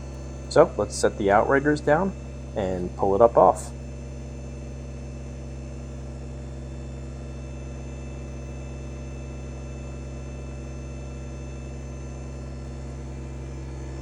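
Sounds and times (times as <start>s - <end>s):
tractor diesel engine running: 0.0s - 3.9s.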